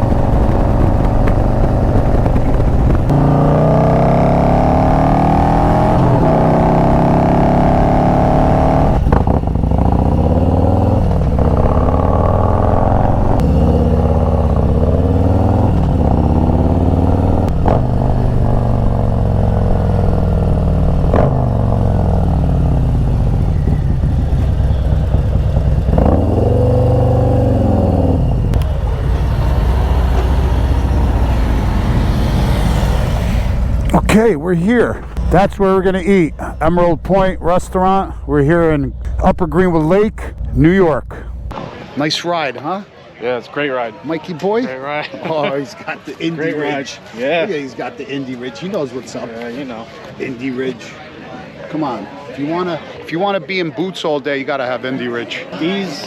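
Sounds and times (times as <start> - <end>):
motorcycle engine revving: 0.0 - 41.6.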